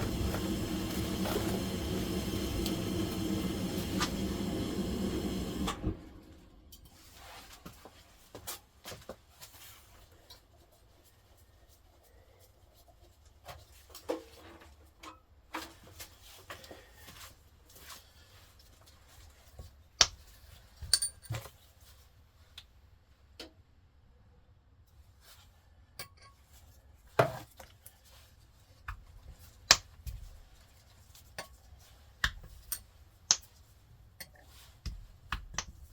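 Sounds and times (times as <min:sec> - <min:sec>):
machine hum: 0:00.0 - 0:06.8
tools knocking and clinking: 0:20.8 - 0:21.5.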